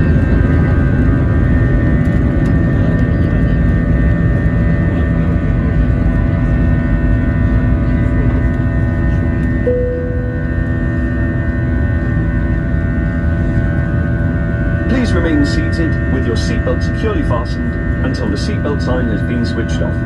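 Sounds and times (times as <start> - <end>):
jet engines rumbling in cabin: 0.0 - 20.0
short clear tone: 9.7 - 10.6.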